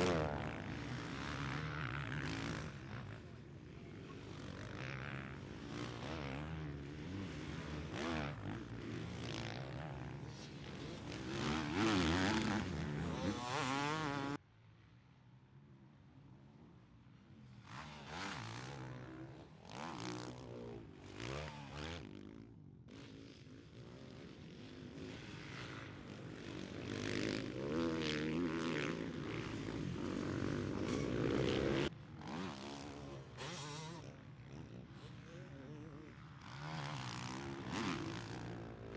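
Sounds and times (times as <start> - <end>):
motocross bike engines revving: 0.0 - 14.4, 22.9 - 38.9.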